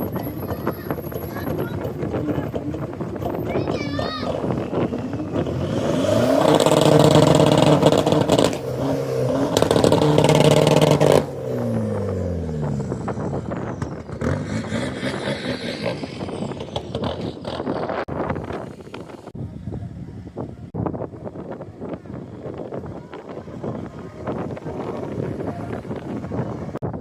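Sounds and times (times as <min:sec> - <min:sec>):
car engine accelerating: 0:04.3 - 0:19.4.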